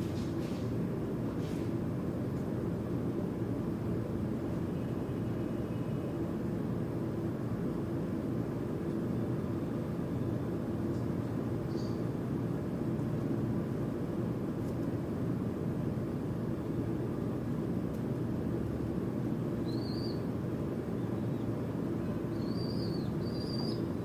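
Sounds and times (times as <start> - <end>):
faint bird chirps: 11.7 - 12.0, 19.6 - 20.3, 21.0 - 24.0.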